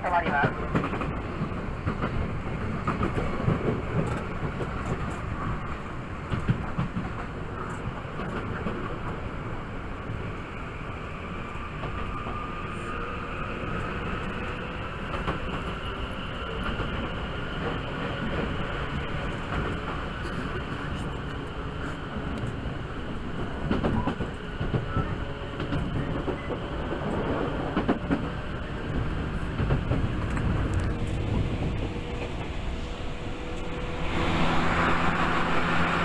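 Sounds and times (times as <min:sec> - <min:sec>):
train wheels rumbling on rails: 0:00.0 - 0:36.0
traction motor whine: 0:31.0 - 0:36.0.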